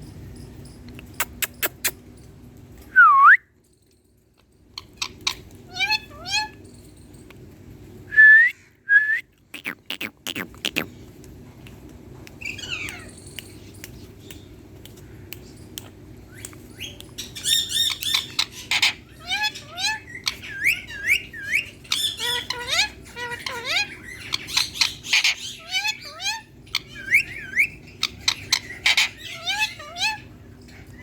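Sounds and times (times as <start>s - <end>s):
parakeet chirps and squeaky calls: 4.8s - 7.0s, 9.5s - 10.9s, 12.4s - 14.6s, 15.4s - 31.0s.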